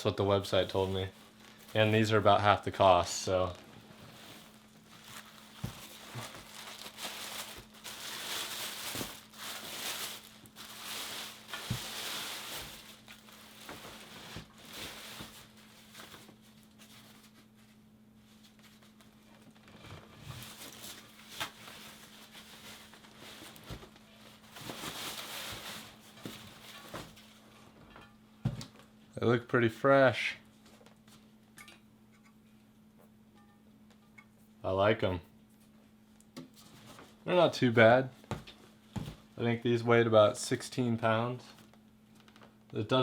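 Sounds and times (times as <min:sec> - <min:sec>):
packaging rustling and crinkling: 0:00.5 - 0:27.4, 0:41.5 - 0:42.5
packaging tearing: 0:04.8 - 0:16.3.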